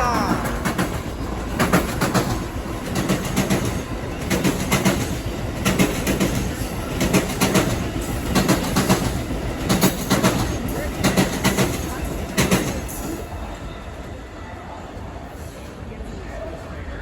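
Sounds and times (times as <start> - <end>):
train rumble: 0.0 - 17.0
train wheels clicking over rail joints: 0.6 - 13.2.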